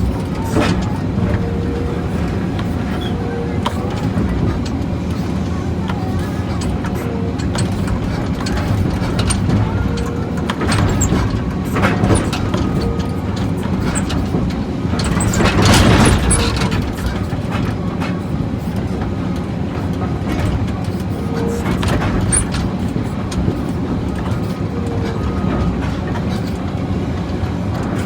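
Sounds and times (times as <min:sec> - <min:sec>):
excavator diesel engine running: 0:00.0 - 0:28.0
metal clanks and knocking: 0:05.9 - 0:18.2.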